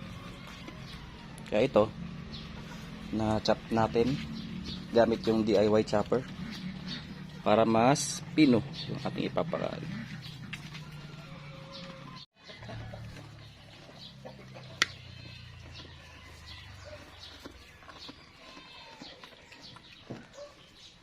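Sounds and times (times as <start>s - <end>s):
clucks: 5.2s - 7.9s, 8.8s - 15.0s.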